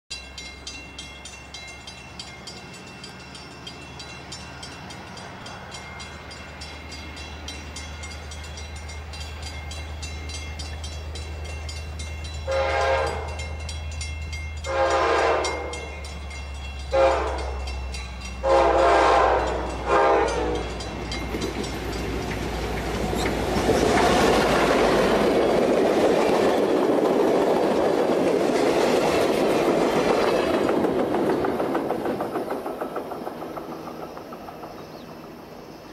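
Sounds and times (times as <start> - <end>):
diesel locomotive engine drone: 0.1 - 35.9
train cars rumbling past: 0.1 - 35.9
train horn: 12.4 - 13.5, 14.6 - 15.9, 16.9 - 17.7, 18.4 - 20.8
wheel clatter on rails: 20.6 - 35.5.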